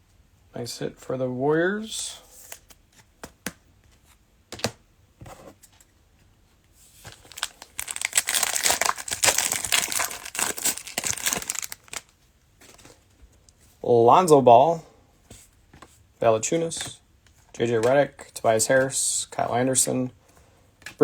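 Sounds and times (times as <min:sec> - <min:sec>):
cellophane wrapper crinkling: 0:07.0 - 0:12.1.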